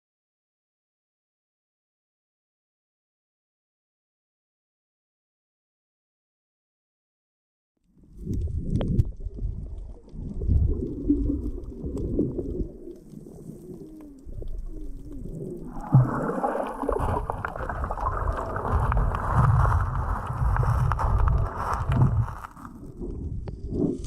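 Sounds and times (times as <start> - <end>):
muffled underwater sloshing: 8.0 - 24.0
water rushing: 10.8 - 22.8.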